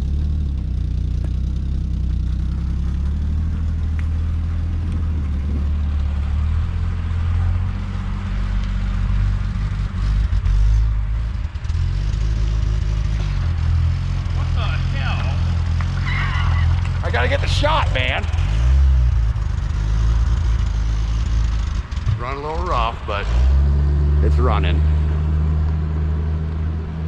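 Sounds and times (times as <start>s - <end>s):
car engine idling roughly: 0.0s - 6.6s
car driving past: 2.4s - 27.0s.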